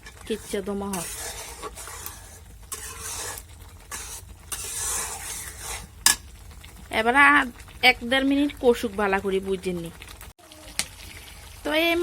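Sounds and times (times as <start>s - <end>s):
spatula scraping a pan: 0.0s - 6.8s
onion sizzling: 0.0s - 12.0s.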